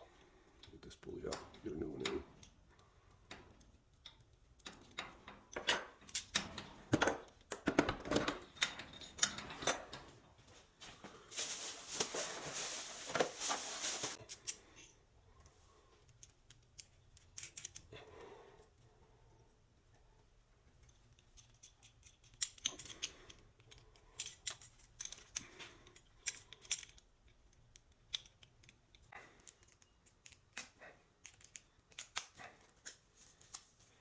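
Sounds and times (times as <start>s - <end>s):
metal parts clicking and knocking: 0.5s - 10.2s, 16.0s - 18.0s, 20.6s - 33.0s.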